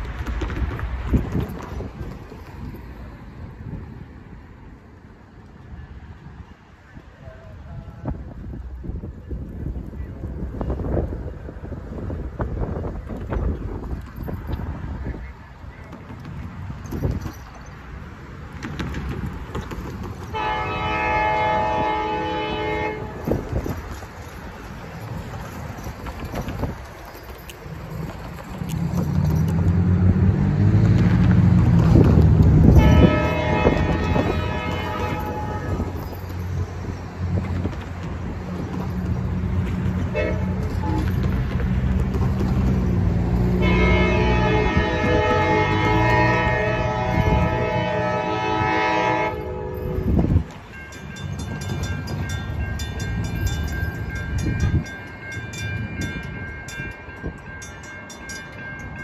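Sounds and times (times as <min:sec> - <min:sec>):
wind buffeting microphone: 0:00.0 - 0:57.8
diesel locomotive rumble: 0:00.0 - 0:59.0
locomotive horn blast: 0:20.3 - 0:23.6, 0:32.6 - 0:36.2, 0:40.0 - 0:41.2, 0:43.4 - 0:50.4.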